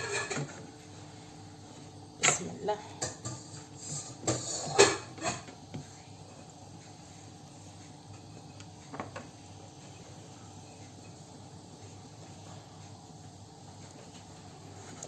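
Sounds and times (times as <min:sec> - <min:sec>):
utensils knocking against a pan: 0:03.0 - 0:05.5.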